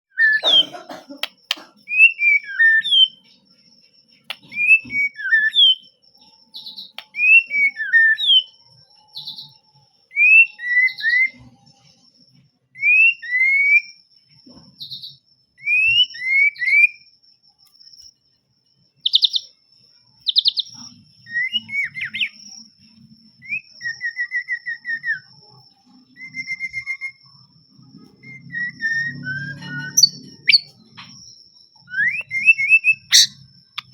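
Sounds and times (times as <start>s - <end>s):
bird singing whistled phrases: 0.1s - 0.7s, 1.9s - 3.2s, 4.3s - 5.9s, 6.6s - 8.6s, 9.2s - 11.4s, 12.8s - 14.0s, 15.6s - 17.1s, 19.1s - 19.5s, 20.2s - 22.4s, 23.4s - 25.4s, 26.2s - 27.3s, 28.2s - 31.2s, 31.8s - 33.9s
bird trills: 0.1s - 3.4s, 19.0s - 19.5s, 20.2s - 22.6s, 28.2s - 33.9s.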